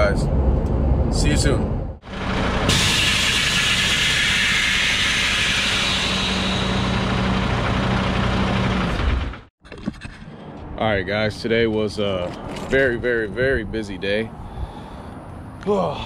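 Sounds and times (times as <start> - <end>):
vehicle engine running: 2.0 - 9.5
loud hiss: 2.4 - 8.6.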